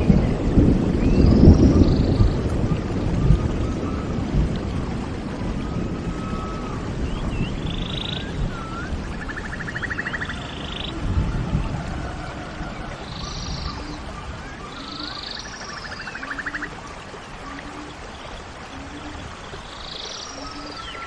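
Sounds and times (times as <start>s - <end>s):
bird whistling and buzzy trill: 5.7s - 11.0s, 13.1s - 16.7s.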